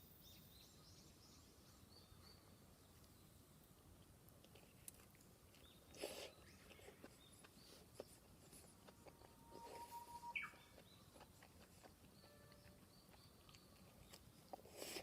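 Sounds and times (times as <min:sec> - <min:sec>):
faint high chirps: 0:09.1 - 0:14.6.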